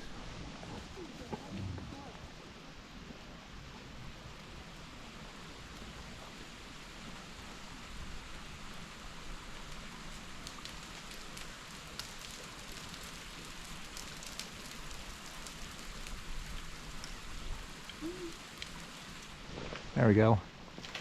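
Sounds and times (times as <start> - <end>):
steady hiss: 0.0 - 21.0
meltwater dripping: 7.8 - 19.4
ice bits pattering down: 9.6 - 19.4.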